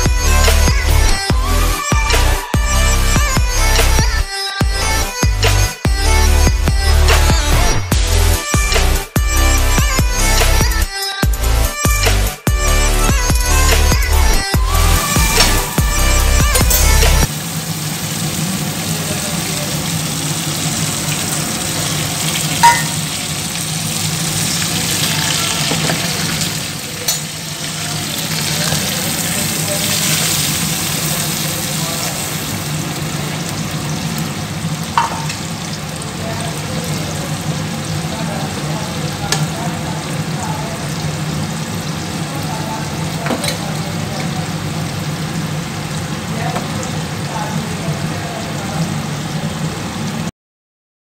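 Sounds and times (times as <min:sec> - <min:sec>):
meat sizzling in hot oil: 0:14.6 - 0:50.3.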